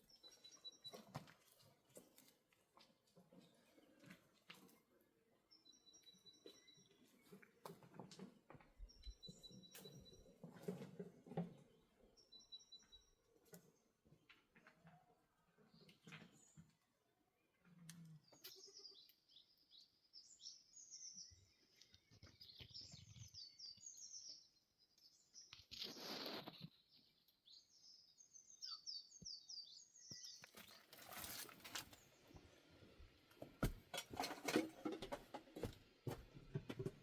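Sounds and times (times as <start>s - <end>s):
songbird chirping: 0.0s - 34.5s.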